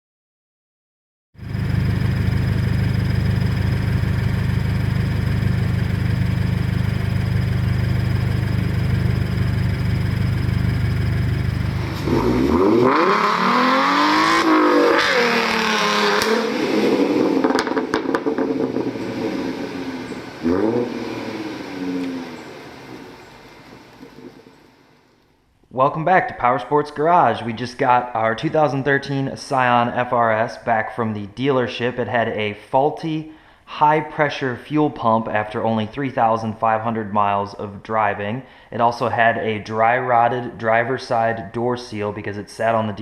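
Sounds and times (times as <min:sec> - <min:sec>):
car engine revving: 0:01.4 - 0:24.5.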